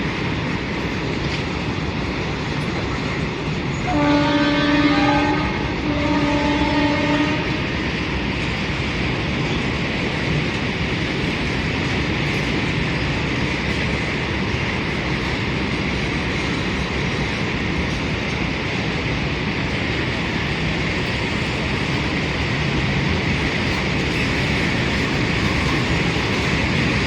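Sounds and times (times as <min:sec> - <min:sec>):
train wagons on rails: 0:00.0 - 0:27.0
train horn: 0:03.8 - 0:07.7.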